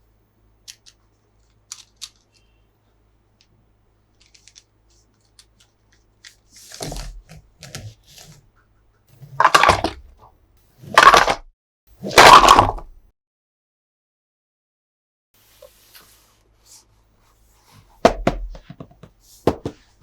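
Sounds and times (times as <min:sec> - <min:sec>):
faint packaging clicks: 0:00.6 - 0:02.6, 0:04.1 - 0:06.6.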